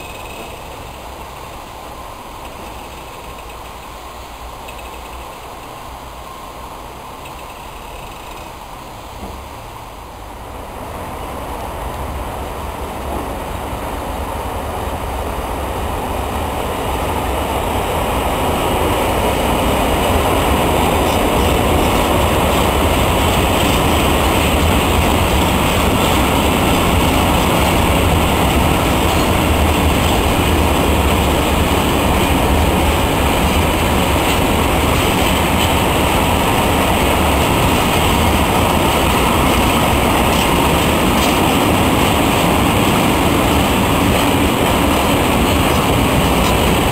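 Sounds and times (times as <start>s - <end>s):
freight trains rumbling past: 0.0s - 46.9s.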